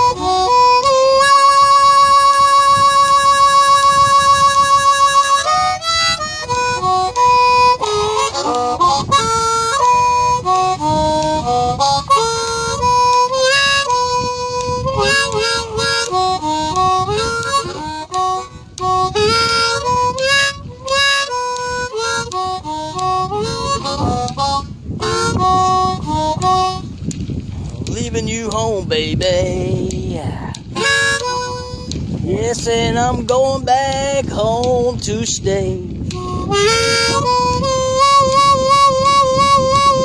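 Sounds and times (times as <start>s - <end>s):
blues harmonica solo: 0.0s - 27.0s, 30.7s - 32.5s, 36.1s - 40.0s.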